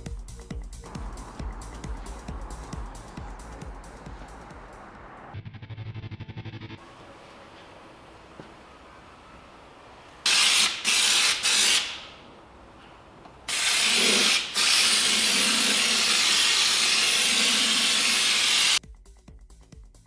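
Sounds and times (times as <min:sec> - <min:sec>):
air hissing from a nozzle: 0:10.3 - 0:12.1, 0:13.5 - 0:18.8.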